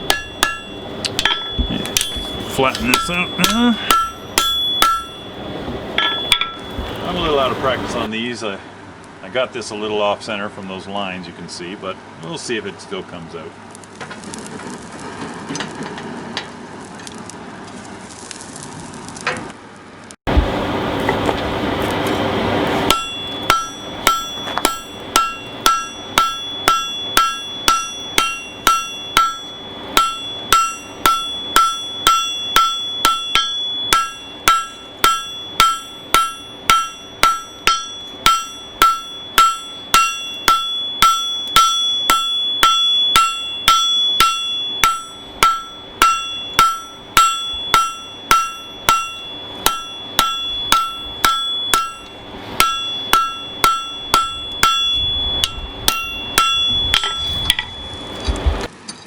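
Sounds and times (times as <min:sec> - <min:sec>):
hammer striking metal on anvil: 0:00.0 - 0:08.1, 0:22.8 - 0:58.7.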